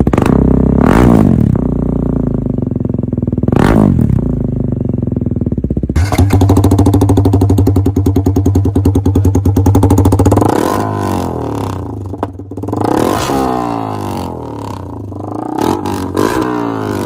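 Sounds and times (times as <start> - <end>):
motorcycle engine pulsing: 4.2 - 17.0.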